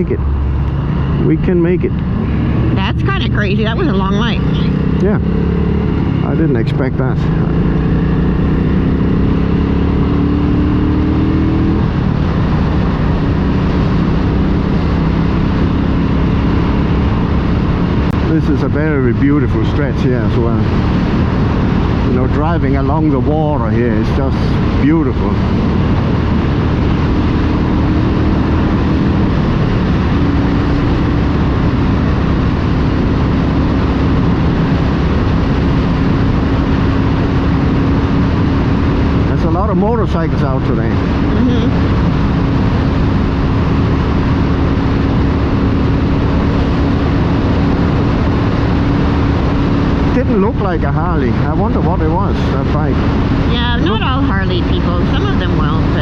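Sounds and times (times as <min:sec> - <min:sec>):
motorcycle engine accelerating: 0:00.0 - 0:56.0
wind and road noise: 0:00.0 - 0:56.0.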